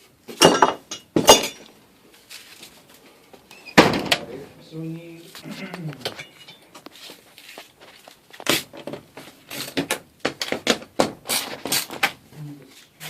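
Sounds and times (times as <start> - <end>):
garage door parts knocking and rattling: 0.3 - 1.7, 3.8 - 4.4, 8.5 - 12.1.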